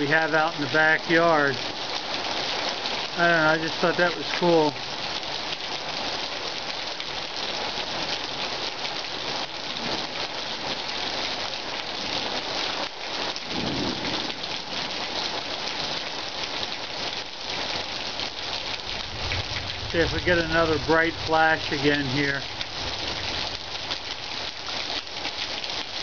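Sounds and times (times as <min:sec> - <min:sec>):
rain falling: 0:00.0 - 0:26.0
low rumble of thunder: 0:13.4 - 0:14.5, 0:18.4 - 0:24.8.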